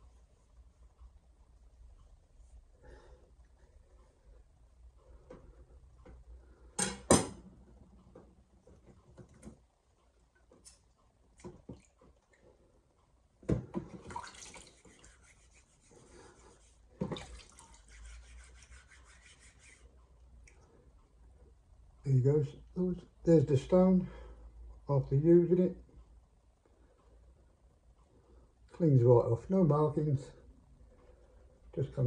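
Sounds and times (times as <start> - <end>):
water running and splashing: 14.0 - 15.5, 17.1 - 18.1.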